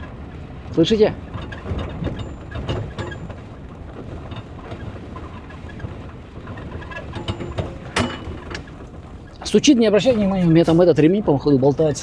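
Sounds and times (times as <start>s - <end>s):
car cabin road rumble: 0.0s - 12.0s
interior knocks: 6.7s - 8.8s.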